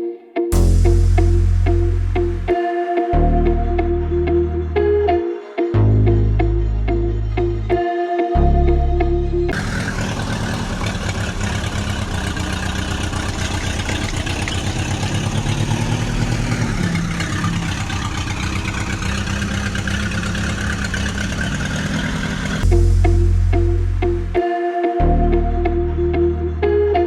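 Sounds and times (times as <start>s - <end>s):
tractor engine chugging: 9.6s - 23.3s.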